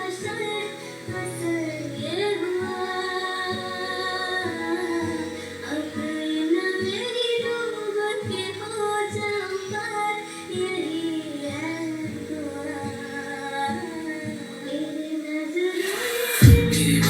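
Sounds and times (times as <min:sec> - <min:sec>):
high voice singing: 0:12.8 - 0:17.0.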